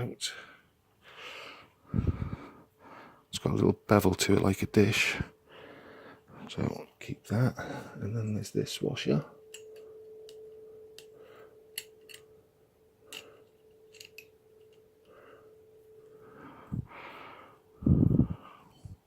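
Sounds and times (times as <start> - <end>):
faint hum: 0.1 - 19.0
breathy rush: 15.1 - 19.0.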